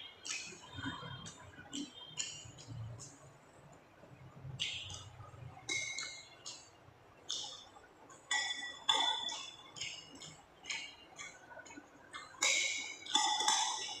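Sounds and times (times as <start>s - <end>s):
cutlery clinking against plate: 8.3s - 10.1s, 12.2s - 14.0s.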